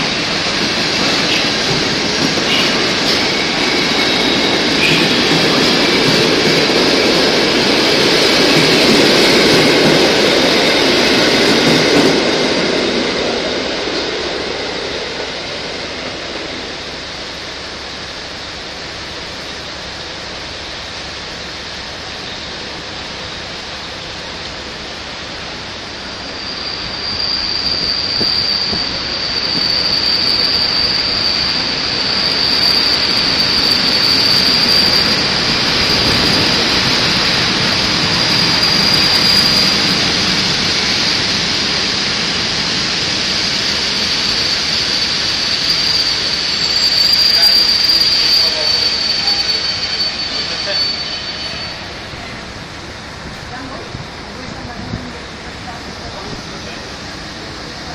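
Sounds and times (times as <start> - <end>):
passenger train running: 0.0 - 57.9
high-pitched wheel squeal: 2.5 - 6.0, 26.2 - 41.8, 43.4 - 52.4.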